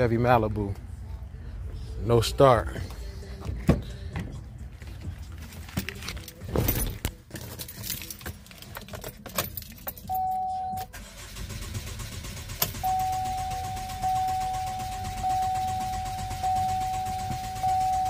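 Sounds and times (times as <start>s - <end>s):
keys jangling: 6.0s - 10.2s.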